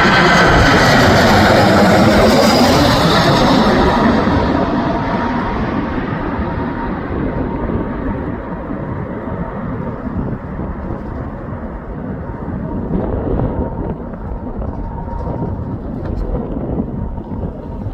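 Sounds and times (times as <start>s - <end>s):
jet engine rumble: 0.0s - 17.9s.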